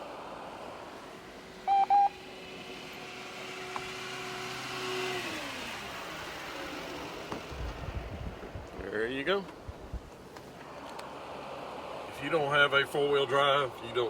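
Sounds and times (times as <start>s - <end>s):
vehicle road and engine noise: 0.0s - 14.0s
short high beeps: 1.7s - 2.2s.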